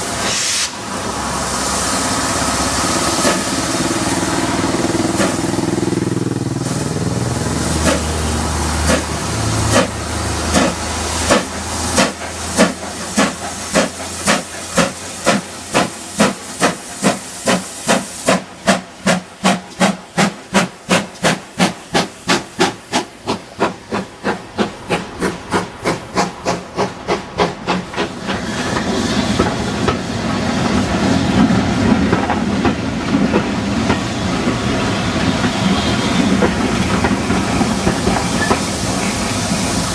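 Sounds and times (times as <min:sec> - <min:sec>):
steam locomotive exhaust beats: 0:00.0 - 0:39.9
train running past: 0:00.0 - 0:39.9.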